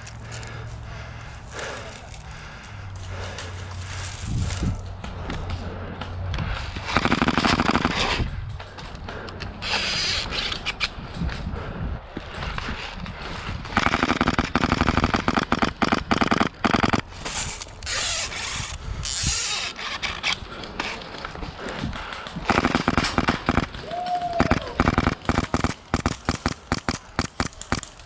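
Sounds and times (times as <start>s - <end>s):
airsoft gun rapid shots: 6.9s - 8.2s, 13.8s - 17.2s, 22.4s - 28.0s.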